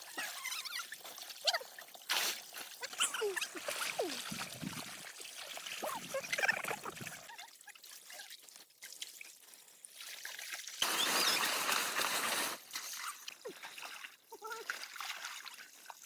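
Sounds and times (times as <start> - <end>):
pouring water rushing: 0.0 - 8.3, 9.7 - 15.8
water trickling: 0.0 - 16.0.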